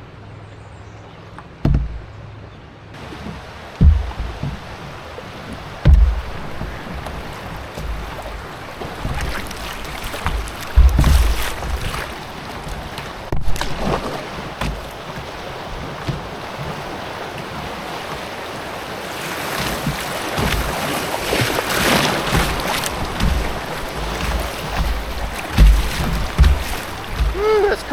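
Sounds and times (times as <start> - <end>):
river water rushing and splashing: 1.1 - 27.9
wind rumbling on microphone: 3.0 - 17.9.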